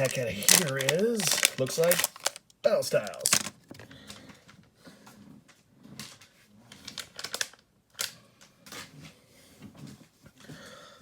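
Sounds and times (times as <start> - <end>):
foil wrappers crinkling: 0.0 - 3.7.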